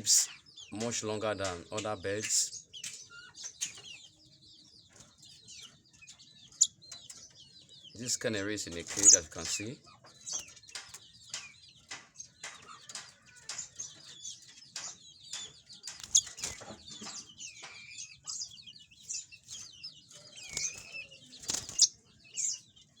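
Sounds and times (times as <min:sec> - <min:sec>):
canary chirping: 0:00.0 - 0:23.0
wings fluttering: 0:08.8 - 0:09.5, 0:15.8 - 0:17.8, 0:19.5 - 0:22.1.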